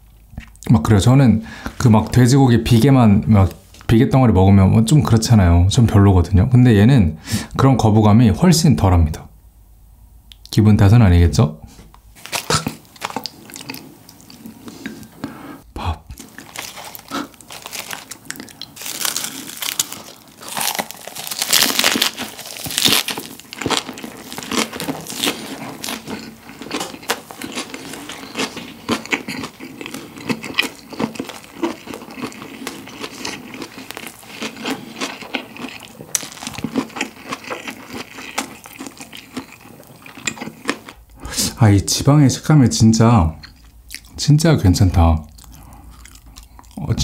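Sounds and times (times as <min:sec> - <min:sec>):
crunching lettuce: 0:12.2 - 0:14.4, 0:16.2 - 0:41.0
wet crackling chewing: 0:12.2 - 0:15.2, 0:16.1 - 0:41.2, 0:45.2 - 0:46.9.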